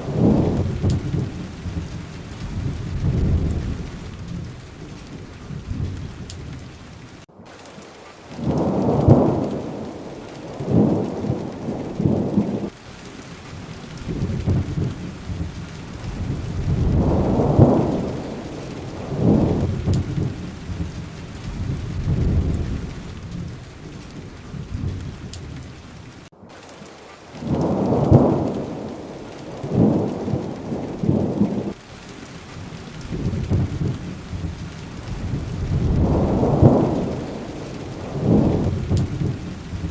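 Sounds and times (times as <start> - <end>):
thunder rumbling: 0.0 - 26.3, 27.4 - 39.9
steady rain: 0.0 - 39.9.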